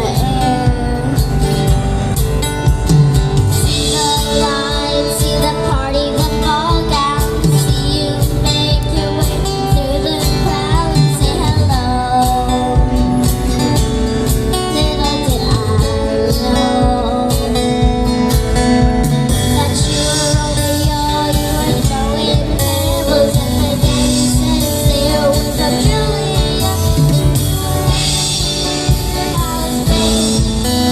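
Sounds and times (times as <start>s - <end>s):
girl singing: 0.0s - 1.9s, 3.6s - 30.9s
instrumental backing with guitar: 0.0s - 30.9s.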